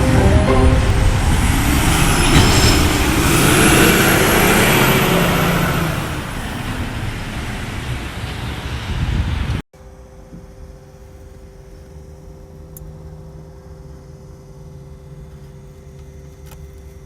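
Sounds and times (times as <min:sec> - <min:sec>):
heavy road vehicle noise: 0:00.0 - 0:09.6.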